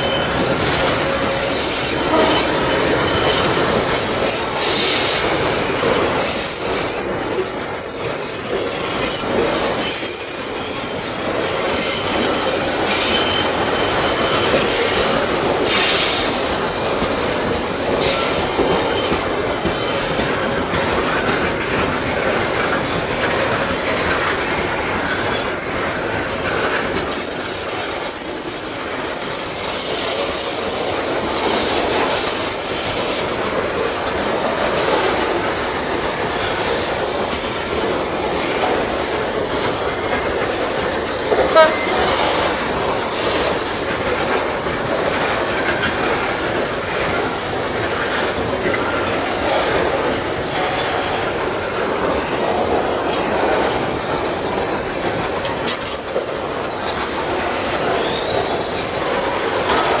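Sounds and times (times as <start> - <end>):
high-pitched wheel squeal: 0.0 - 6.5
train wheels rumbling on rail: 0.0 - 60.0.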